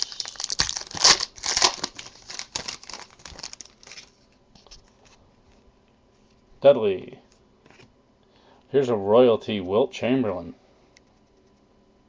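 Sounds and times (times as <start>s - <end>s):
wrapper tearing and crinkling: 0.0s - 4.2s.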